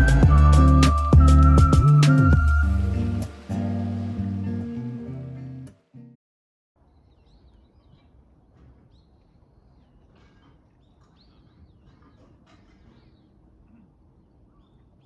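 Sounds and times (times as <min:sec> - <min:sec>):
faint background noise: 0:06.8 - 0:15.0.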